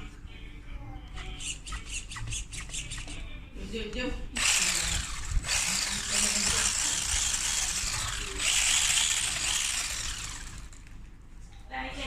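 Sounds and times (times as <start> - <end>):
toy car electric motor whirring: 4.4 - 10.9.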